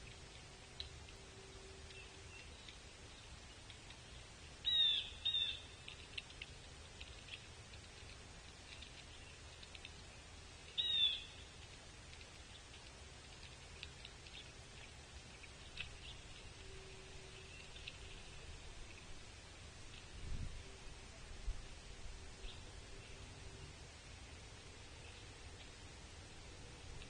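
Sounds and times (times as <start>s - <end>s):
faint ticks: 0.0s - 4.2s, 4.9s - 19.2s
outdoor background noise: 0.0s - 27.0s.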